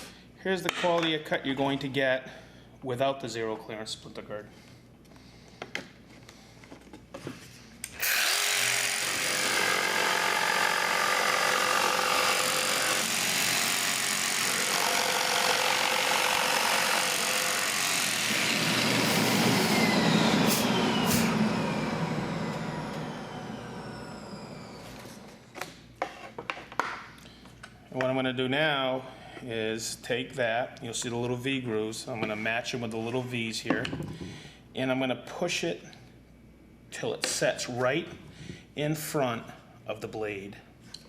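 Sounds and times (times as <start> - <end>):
jigsaw cutting through a board: 8.0 - 25.3
motor winding down with falling whine: 8.0 - 25.5.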